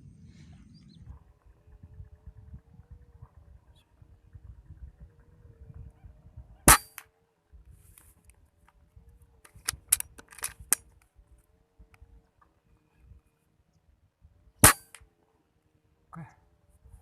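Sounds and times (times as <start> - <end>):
air rifle shot: 6.7 - 7.0, 14.6 - 15.0
small sharp cracks and clicks: 9.4 - 11.2.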